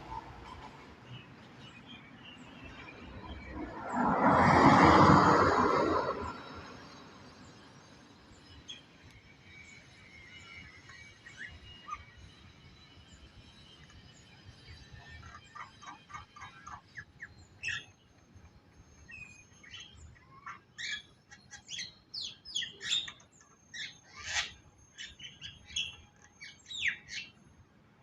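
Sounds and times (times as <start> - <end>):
songbird singing: 19.0 - 27.4.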